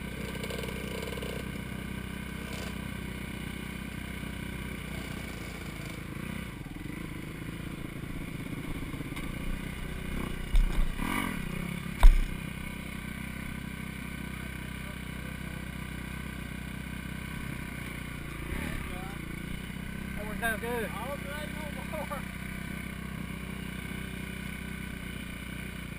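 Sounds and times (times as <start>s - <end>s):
dirt bike engine running: 0.0s - 25.9s
bike thumping over rough ground: 10.4s - 11.3s, 11.9s - 12.6s.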